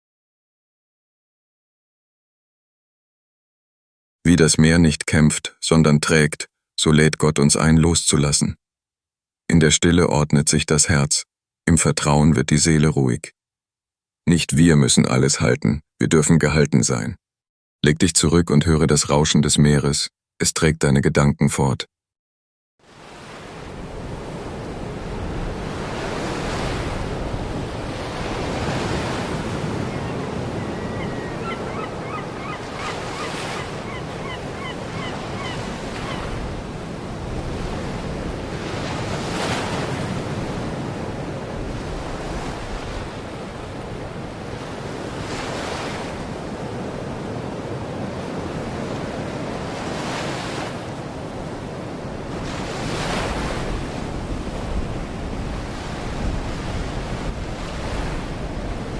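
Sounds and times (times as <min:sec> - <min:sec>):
surf washing onto shore: 0:23.0 - 0:34.3
wind on microphone: 0:23.7 - 0:39.1, 0:51.2 - 0:58.9
bird short high calls: 0:29.6 - 0:36.4.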